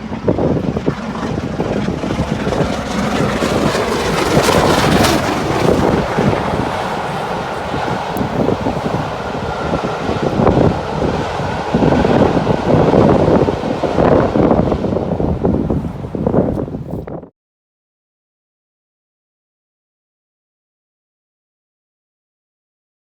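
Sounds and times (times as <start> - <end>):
steam locomotive passing: 0.0 - 16.5
wind buffeting microphone: 0.0 - 17.3.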